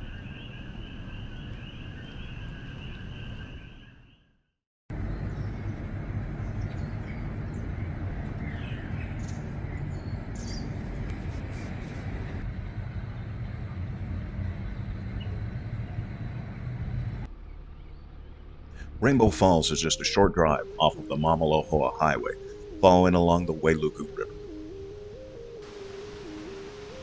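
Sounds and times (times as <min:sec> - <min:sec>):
bird chirps: 0:00.0 - 0:04.3, 0:13.1 - 0:20.0
steady outdoor rushing rumble: 0:04.9 - 0:19.8.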